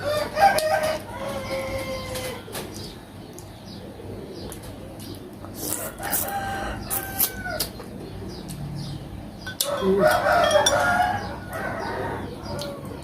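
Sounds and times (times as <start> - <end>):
rooster crowing: 0.0 - 2.4, 5.8 - 7.7, 9.6 - 13.0.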